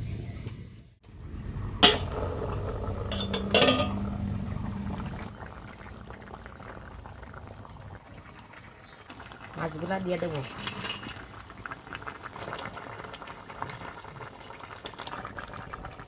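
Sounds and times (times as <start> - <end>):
curry bubbling in a pot: 1.1 - 16.0
utensil clanking against pot: 1.8 - 4.7.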